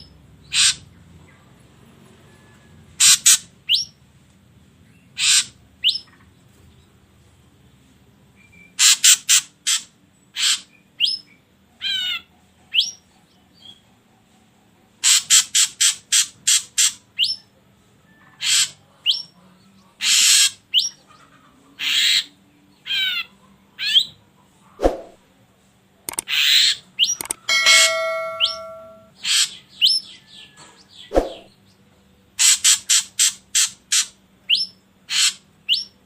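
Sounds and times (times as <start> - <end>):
bird harsh rasping calls: 5.2 - 6.0, 35.1 - 35.9.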